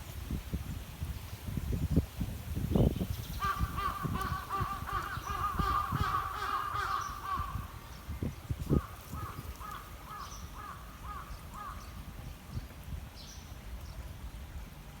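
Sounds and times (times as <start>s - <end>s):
crow cawing: 3.5s - 7.6s.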